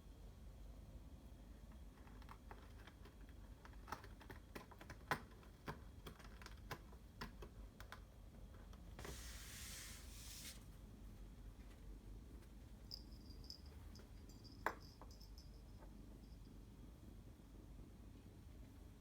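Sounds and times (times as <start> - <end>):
faint irregular clicks and taps: 1.7 - 9.0
short hissing rush: 9.0 - 10.7.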